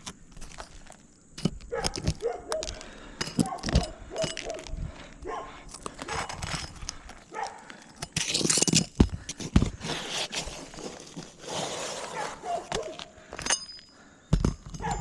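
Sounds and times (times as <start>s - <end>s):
dog barking: 1.7s - 2.7s, 3.4s - 4.6s, 5.3s - 6.3s, 7.3s - 7.7s, 12.1s - 13.0s
shingle scraping: 5.7s - 13.8s
hand tools knocking and tapping: 12.7s - 15.0s.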